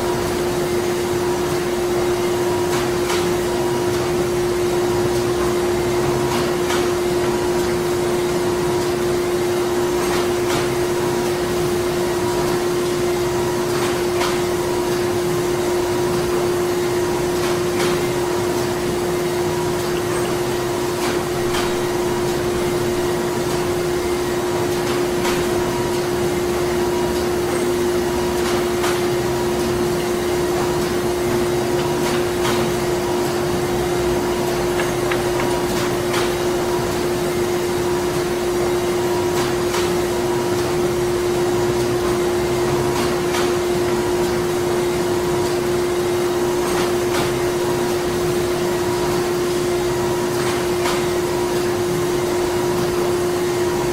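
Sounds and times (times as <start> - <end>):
machinery droning hum: 10.7 - 46.6.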